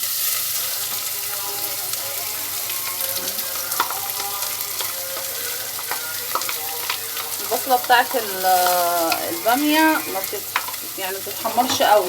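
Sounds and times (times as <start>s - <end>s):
onion sizzling in fat: 0.0s - 12.0s
stirring clicks in a pot: 3.7s - 10.9s.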